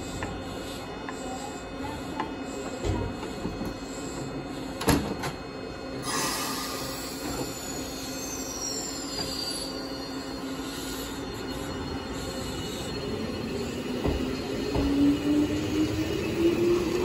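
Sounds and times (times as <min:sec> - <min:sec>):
train door shutting: 0:04.7 - 0:05.4, 0:06.0 - 0:09.7, 0:12.4 - 0:17.0
train squeal sliding down: 0:06.0 - 0:17.0.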